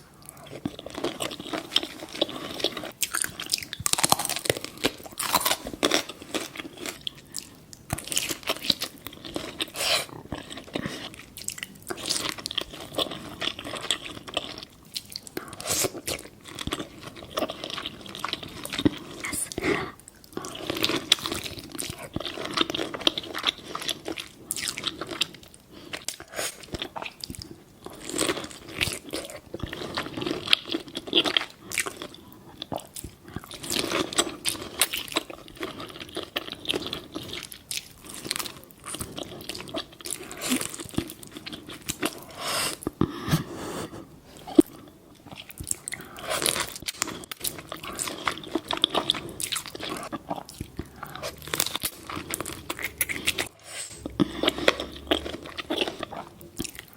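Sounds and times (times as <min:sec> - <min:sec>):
biting and crunching: 0:00.3 - 0:25.4, 0:44.6 - 0:56.9.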